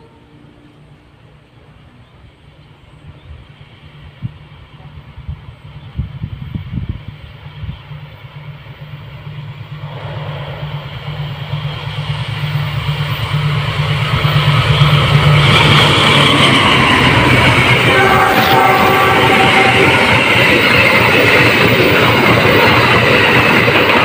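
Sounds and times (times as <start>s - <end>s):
wheels rumbling on rail: 0.0s - 24.0s
low engine drone: 9.2s - 20.3s.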